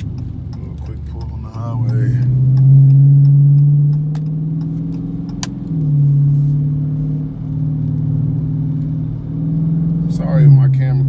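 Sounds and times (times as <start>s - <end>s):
sharp click: 0.0s - 5.7s
car engine drone: 0.0s - 11.0s.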